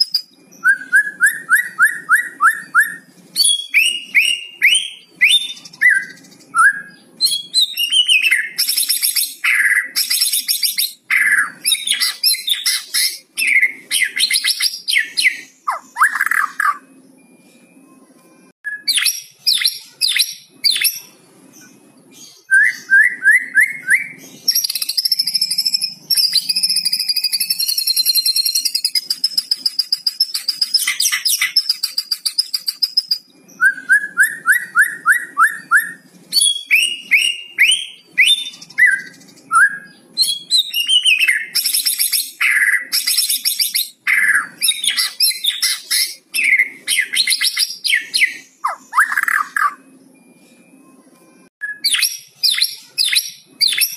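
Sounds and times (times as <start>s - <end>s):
songbird singing varied song: 18.7s - 50.3s.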